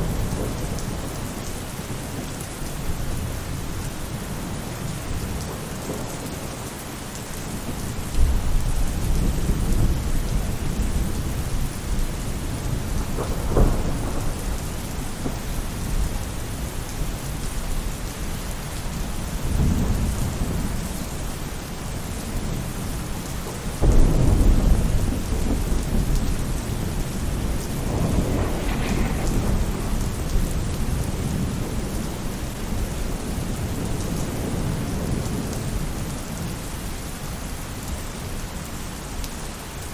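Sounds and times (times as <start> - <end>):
thunder rumbling: 0.0 - 36.0
rain on a roof: 0.0 - 39.9.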